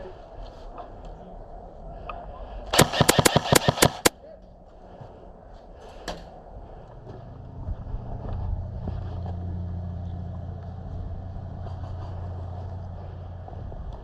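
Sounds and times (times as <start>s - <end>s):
airsoft gun shots: 2.8s - 4.2s.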